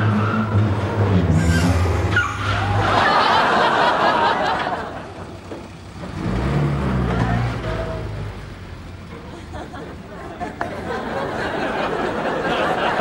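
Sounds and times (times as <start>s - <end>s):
audience laughter: 2.6s - 5.4s, 9.2s - 13.0s.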